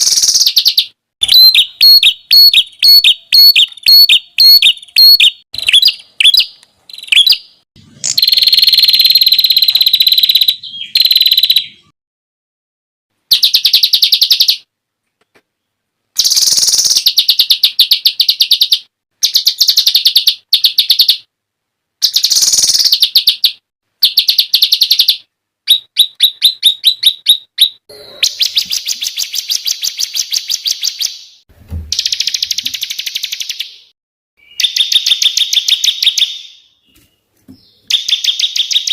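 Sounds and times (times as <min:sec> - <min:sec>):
songbird fast trills: 0:16.2 - 0:21.2
low thump: 0:31.5 - 0:32.0.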